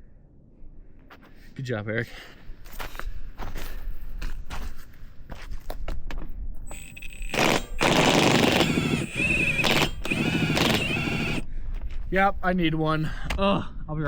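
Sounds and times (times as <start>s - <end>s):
impact wrench rattling: 6.7s - 11.4s.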